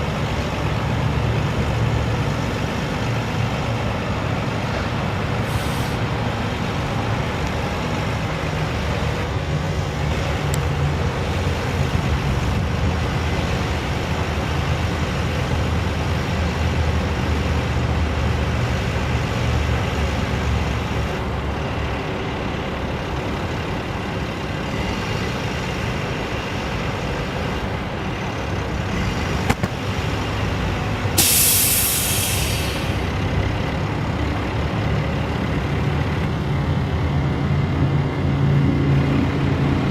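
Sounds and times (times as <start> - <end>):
diesel engine running: 0.0 - 39.9
compressed air hissing: 5.4 - 6.0, 31.2 - 33.1.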